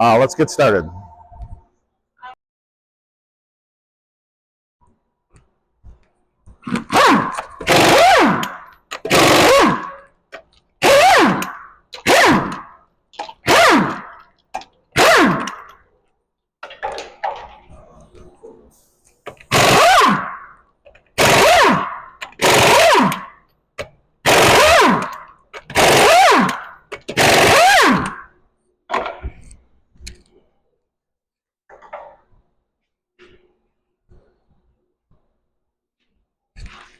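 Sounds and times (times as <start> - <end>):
impact wrench whining: 6.6 - 15.8, 19.2 - 28.4.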